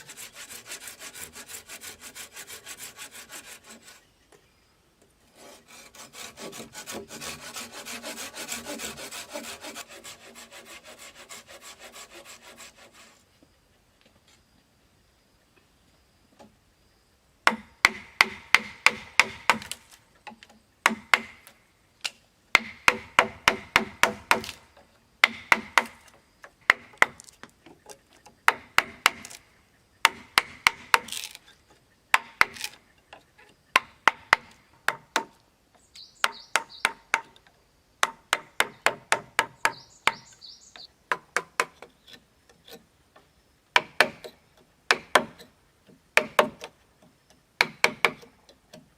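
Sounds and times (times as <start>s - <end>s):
hand tool chopping wood: 17.5s - 20.0s, 20.8s - 21.5s, 22.1s - 27.5s, 28.5s - 29.4s, 30.0s - 31.4s, 32.1s - 32.8s, 38.0s - 40.3s, 43.8s - 45.5s, 46.2s - 46.8s, 47.6s - 48.9s.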